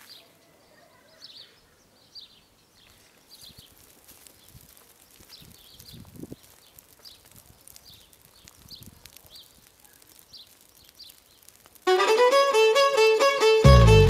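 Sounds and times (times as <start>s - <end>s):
violin-led folk tune: 11.9s - 14.0s.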